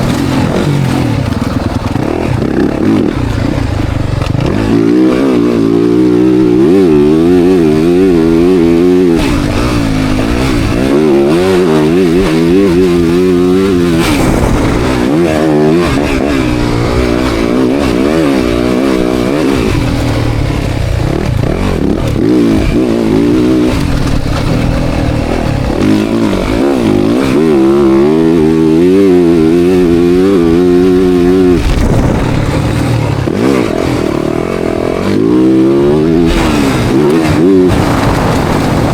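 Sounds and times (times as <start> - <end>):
motocross bike engine revving: 0.0 - 38.9.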